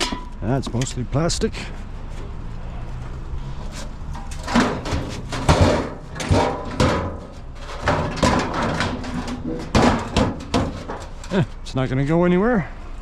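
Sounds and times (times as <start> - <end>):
scrap metal knocks and scrapes: 0.0 - 0.4, 1.8 - 11.7.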